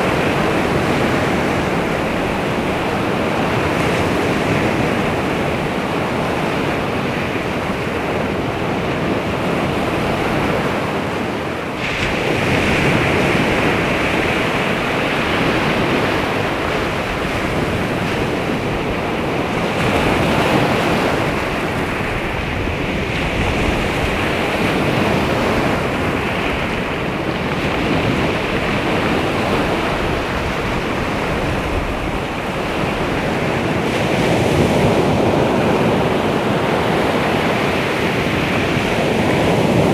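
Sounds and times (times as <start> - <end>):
waves washing onto shore: 0.0 - 39.9
wind rumbling on microphone: 0.0 - 39.9.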